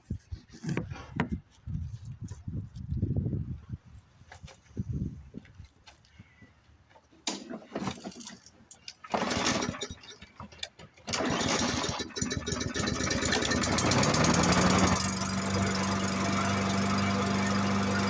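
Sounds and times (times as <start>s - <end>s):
recoil starter pulls: 7.2s - 18.0s
lawn mower engine running: 8.9s - 18.0s.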